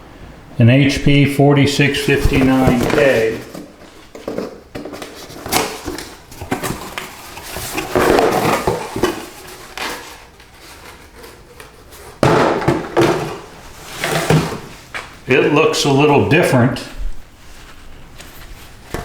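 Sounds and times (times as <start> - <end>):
rustling scraping: 1.8 - 15.3, 16.9 - 19.0
air filter handling knocks: 12.2 - 15.1.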